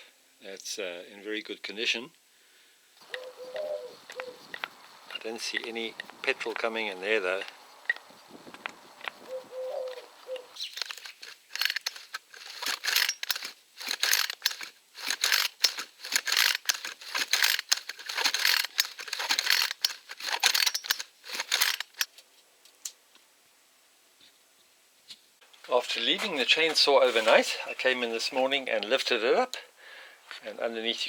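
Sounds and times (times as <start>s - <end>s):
chainsaw clicking and rattling: 3.0s - 6.7s, 10.6s - 22.1s.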